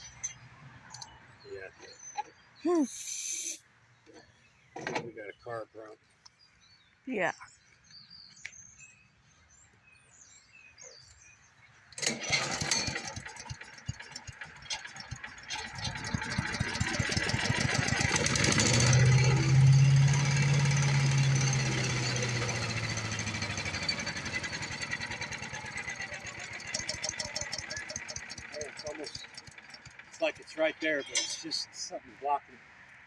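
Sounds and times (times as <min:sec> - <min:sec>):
small gas engine running: 0:12.0 - 0:31.6.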